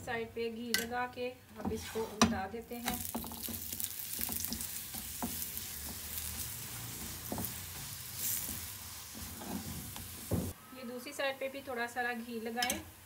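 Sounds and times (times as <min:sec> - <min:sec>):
spatula scraping and tapping: 0:01.6 - 0:10.5
flatbread sizzling in a pan: 0:01.8 - 0:10.6.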